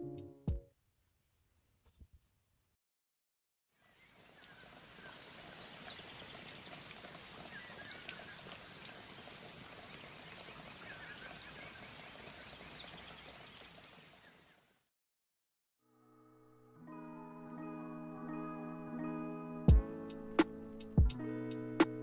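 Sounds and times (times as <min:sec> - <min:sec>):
water noise: 0:04.1 - 0:14.5.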